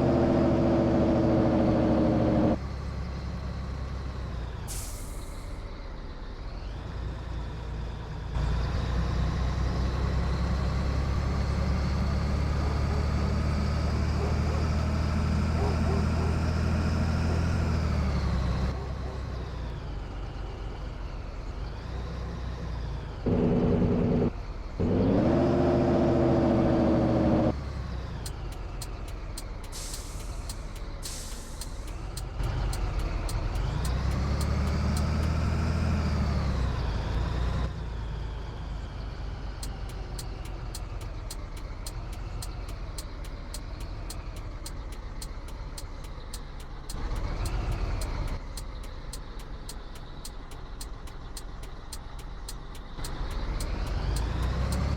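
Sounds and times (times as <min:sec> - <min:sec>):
truck diesel engine running: 0:00.0 - 0:54.9
air hissing: 0:29.7 - 0:32.0
fast regular ticking: 0:39.6 - 0:54.9.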